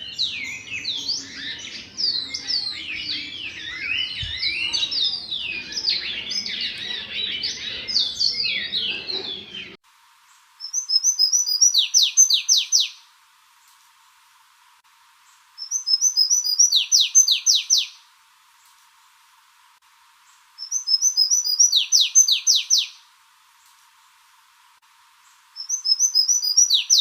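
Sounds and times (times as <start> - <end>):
songbirds singing: 0.0 - 9.8, 10.6 - 13.0, 15.3 - 18.0, 20.2 - 23.0, 25.2 - 27.0.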